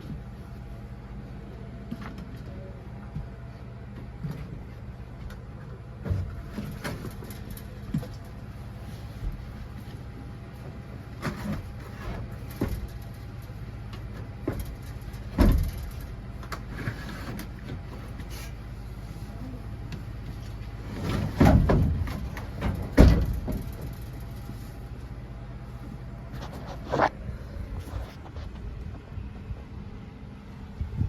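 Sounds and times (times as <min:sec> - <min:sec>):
steady low hum: 0:00.0 - 0:31.0
knocks and clunks: 0:14.1 - 0:16.7, 0:20.9 - 0:24.2.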